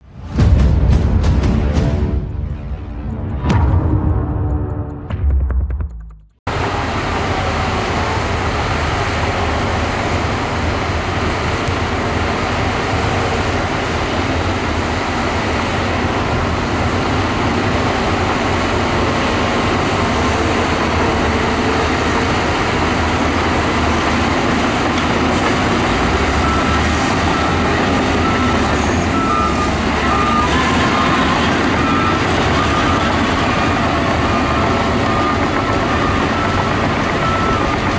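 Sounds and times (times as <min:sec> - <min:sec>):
diesel engines rumbling: 0:06.5 - 0:37.9
reversing alarm beeping: 0:20.2 - 0:37.9.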